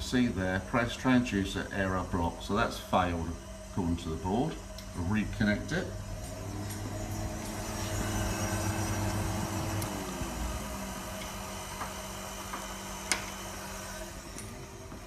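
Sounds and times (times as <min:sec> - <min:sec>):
machine hum dropping in pitch: 0:05.9 - 0:15.0.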